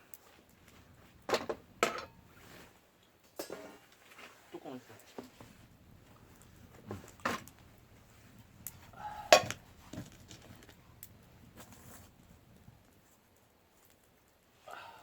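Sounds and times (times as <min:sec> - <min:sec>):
cookware clinking and knocking: 0:01.3 - 0:02.2.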